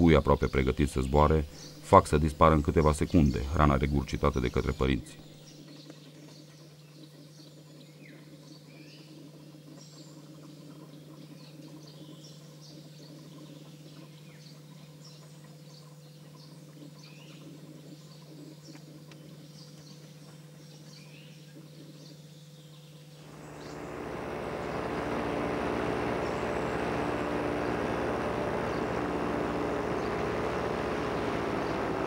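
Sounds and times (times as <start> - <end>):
small birds chirping: 0.0 - 32.0
steady low hum: 23.2 - 32.0.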